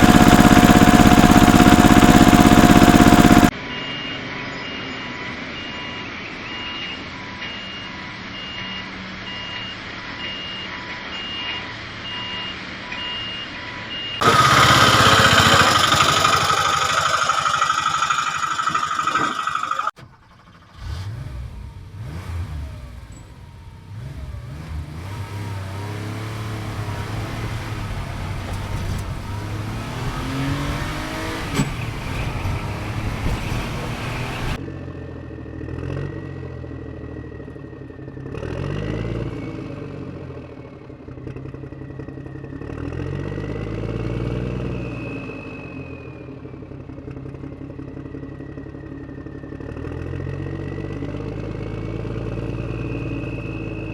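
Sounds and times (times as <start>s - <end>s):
vehicle engine revving: 0.0s - 3.5s, 14.2s - 34.6s, 35.4s - 45.1s, 46.8s - 53.9s.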